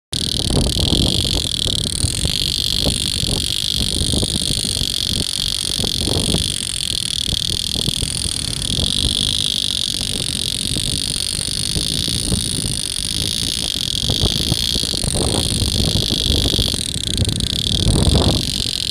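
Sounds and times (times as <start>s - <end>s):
shrill frog chorus: 0.2s - 18.9s.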